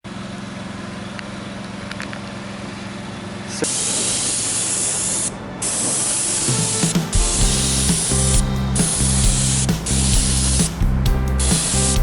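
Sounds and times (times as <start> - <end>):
paint sprayer machine hum: 3.6 - 12.0
spray gun hissing: 7.5 - 10.8.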